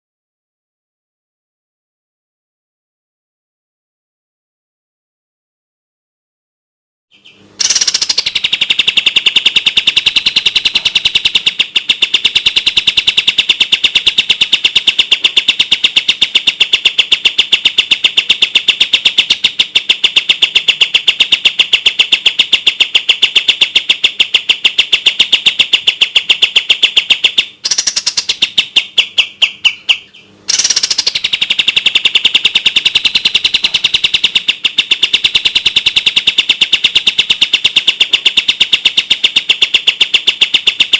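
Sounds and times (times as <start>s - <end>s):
songbird trilling: 7.1s - 39.3s.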